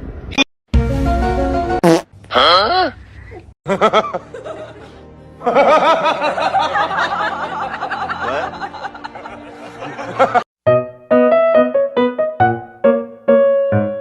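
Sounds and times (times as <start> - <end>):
music: 0.7 - 1.8, 3.7 - 14.0
people laughing: 3.7 - 10.5.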